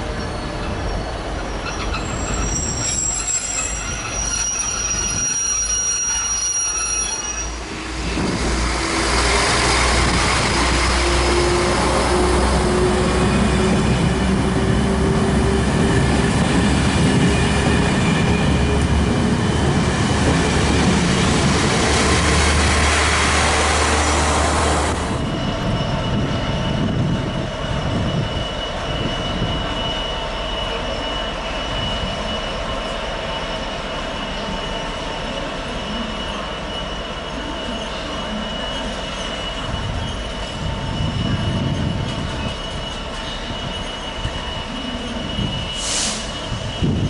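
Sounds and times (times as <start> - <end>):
freight train rumbling past: 0.0 - 47.0
wheel squeal: 0.2 - 7.8, 35.9 - 47.0.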